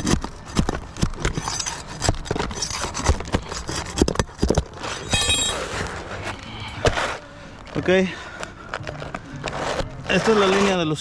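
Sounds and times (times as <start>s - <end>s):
brief high squeak: 4.9s - 5.9s
tool scraping asphalt shingles: 9.4s - 11.0s.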